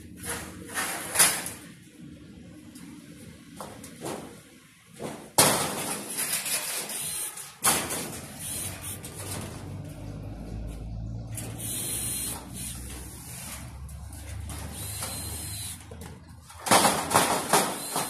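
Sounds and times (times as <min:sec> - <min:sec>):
steel parts clattering and scraping: 0:00.2 - 0:01.7, 0:05.0 - 0:10.1, 0:11.2 - 0:18.0.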